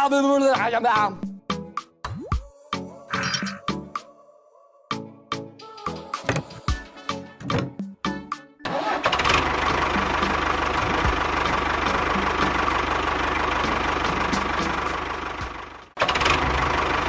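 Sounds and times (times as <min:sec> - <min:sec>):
engine rumbling: 0:08.7 - 0:17.0.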